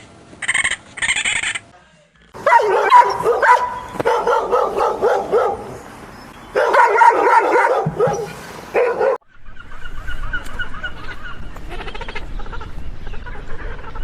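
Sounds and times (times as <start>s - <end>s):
dog barking and yipping: 2.4s - 9.2s.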